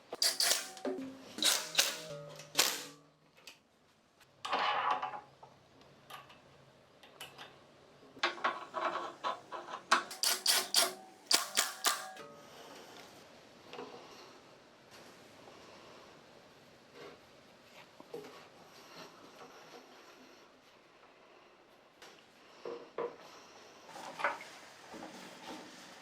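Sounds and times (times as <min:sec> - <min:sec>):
sharp metal clanks: 0:00.1 - 0:03.0, 0:10.0 - 0:12.2.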